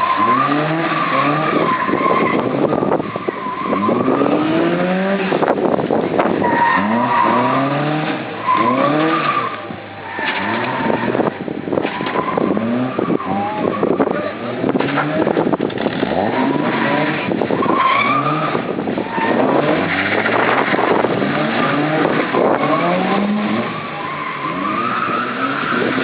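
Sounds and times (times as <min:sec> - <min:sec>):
car engine revving hard: 0:00.0 - 0:09.6, 0:10.3 - 0:26.0
tyres squealing: 0:16.1 - 0:26.0.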